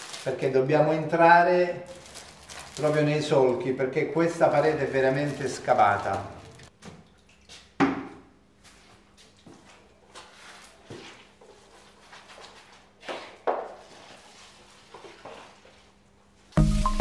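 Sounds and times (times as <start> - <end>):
paint roller swishing on wall: 10.2 - 16.1
music: 16.6 - 17.0.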